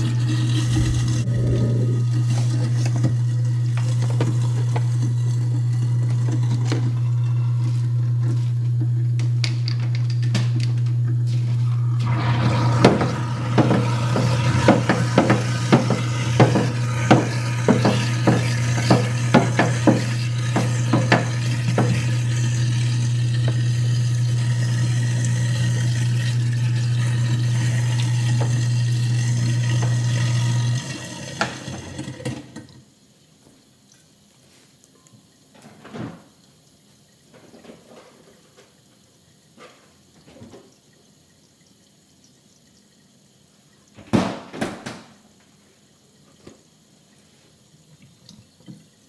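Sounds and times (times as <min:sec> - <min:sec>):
water flowing: 0:00.0 - 0:09.4, 0:10.9 - 0:32.7
garbage disposal motor hum: 0:00.0 - 0:33.0
food chunks rattling in grinder: 0:12.2 - 0:32.3.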